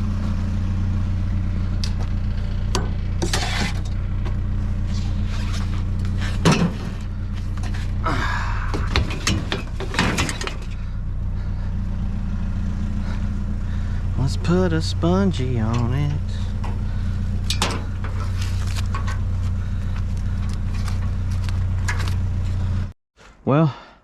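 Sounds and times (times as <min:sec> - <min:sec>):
vehicle engine running: 0:00.0 - 0:23.0
loose objects clattering: 0:08.7 - 0:10.8.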